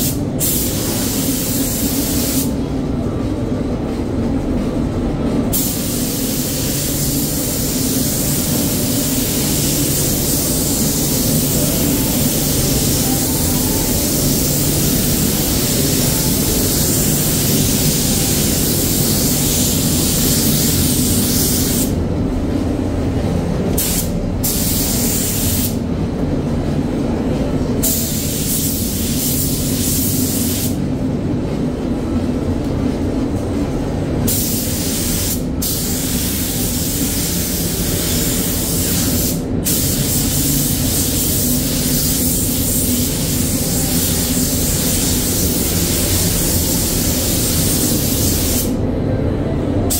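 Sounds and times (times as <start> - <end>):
spray gun hissing: 0.0 - 2.5, 5.5 - 22.0, 23.8 - 25.8, 27.8 - 30.8, 34.3 - 48.8
extraction fans humming: 0.0 - 49.9.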